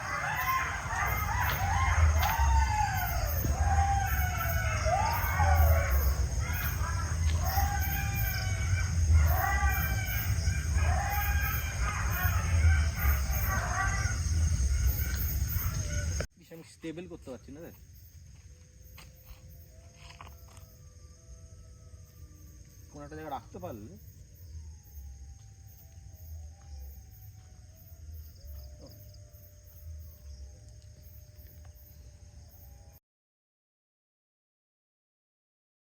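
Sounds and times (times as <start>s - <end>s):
animals wailing in chorus: 0.0s - 16.2s
night insects chirping: 0.0s - 33.0s.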